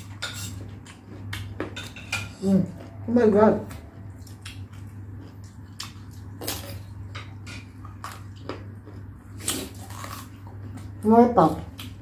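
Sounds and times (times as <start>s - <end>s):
steady low hum: 0.0s - 12.0s
chewing orange segments: 3.6s - 11.0s.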